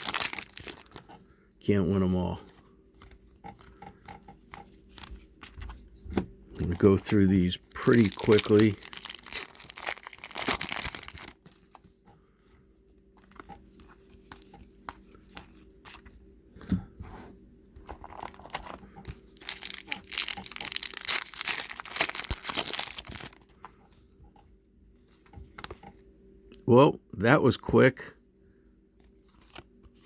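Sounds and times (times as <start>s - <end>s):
card pack wrappers tearing and crinkling: 0.0s - 1.1s, 6.7s - 11.8s, 18.0s - 23.6s.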